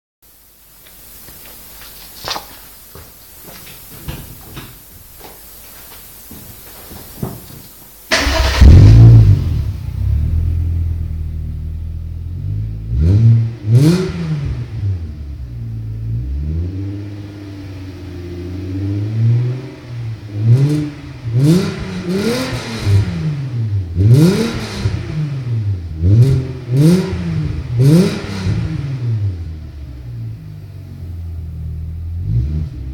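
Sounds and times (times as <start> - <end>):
car engine idling and revving: 8.1 - 32.9.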